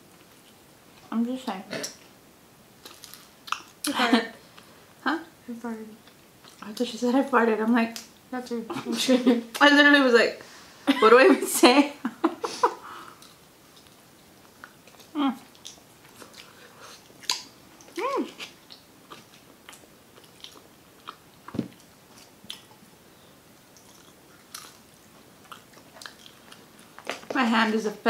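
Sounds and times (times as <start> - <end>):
biting and chewing food: 13.2 - 22.8.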